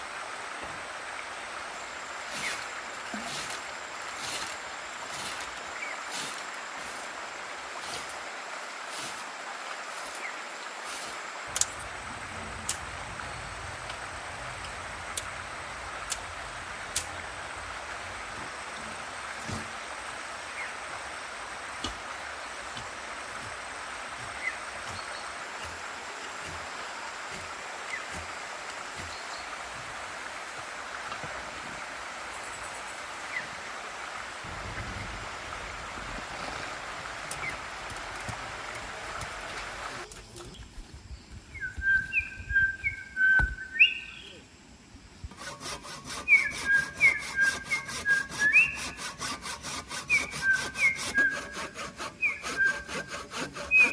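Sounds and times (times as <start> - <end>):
steady background hiss: 0.0 - 53.9
saw cutting wood: 18.3 - 19.8, 21.8 - 29.1, 45.3 - 53.9.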